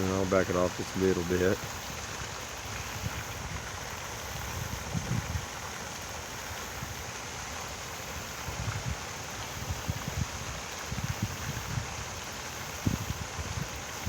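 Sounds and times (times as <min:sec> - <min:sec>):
flowing water rushing: 0:00.0 - 0:14.0
wind buffeting microphone: 0:02.9 - 0:05.6, 0:08.4 - 0:12.1, 0:12.8 - 0:14.0.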